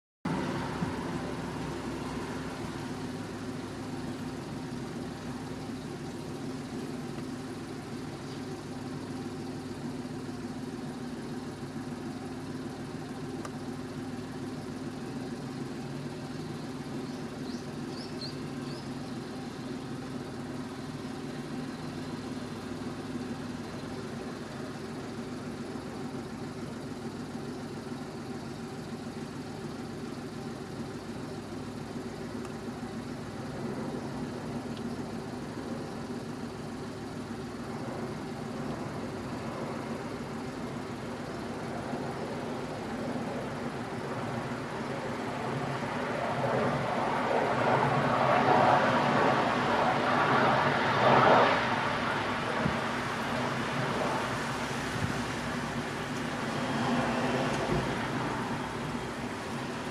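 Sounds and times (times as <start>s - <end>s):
idling vehicle engine hum: 0.2s - 59.9s
faint high chirps: 16.4s - 19.7s.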